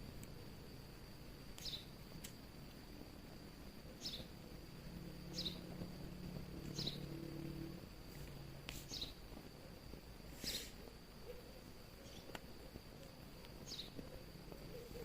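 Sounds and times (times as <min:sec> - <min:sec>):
high insect trill: 0:00.0 - 0:15.0
falling bird chirp: 0:01.6 - 0:01.9, 0:03.9 - 0:04.3, 0:05.3 - 0:05.7, 0:06.7 - 0:07.1, 0:08.8 - 0:09.2, 0:12.0 - 0:12.4, 0:13.6 - 0:14.1.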